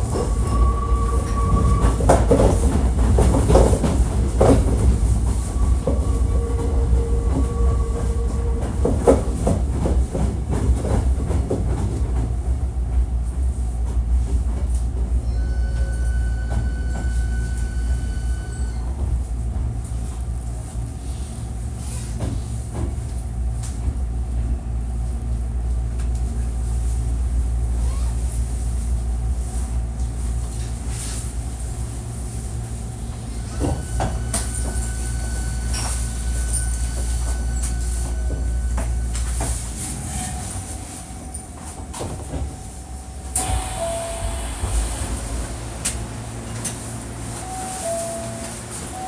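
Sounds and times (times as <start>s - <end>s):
train rumbling: 0.0s - 49.0s
high brake tone: 42.6s - 49.0s.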